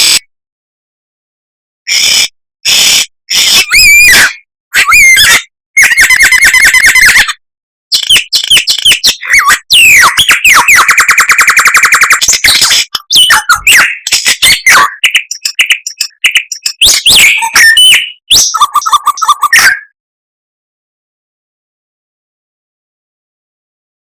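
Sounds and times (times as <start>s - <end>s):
songbird singing: 12.2s - 19.7s.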